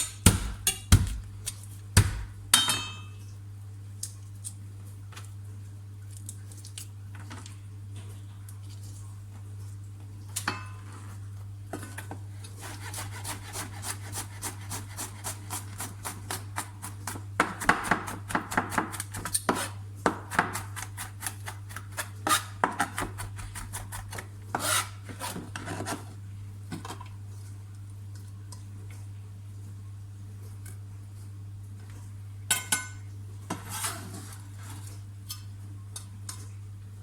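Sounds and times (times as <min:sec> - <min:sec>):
knife chopping on cutting board: 0:00.0 - 0:01.3, 0:02.0 - 0:02.4, 0:12.6 - 0:25.4.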